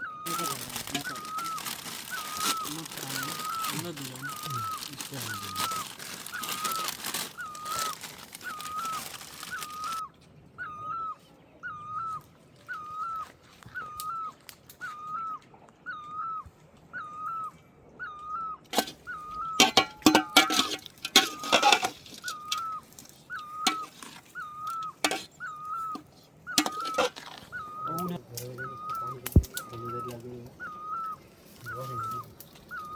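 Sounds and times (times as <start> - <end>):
bird whistled call: 0.0 - 32.9
clattering and rustling: 18.7 - 25.3, 25.9 - 27.5.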